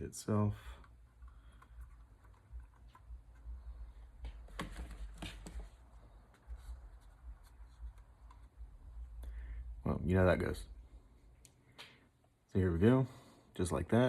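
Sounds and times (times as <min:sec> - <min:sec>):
low steady hum: 0:00.0 - 0:14.0
soft rubbing: 0:01.9 - 0:09.1.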